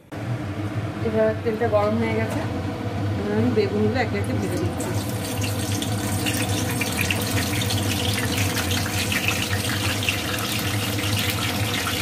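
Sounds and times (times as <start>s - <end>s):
vegetables sizzling in hot oil: 4.4s - 12.0s.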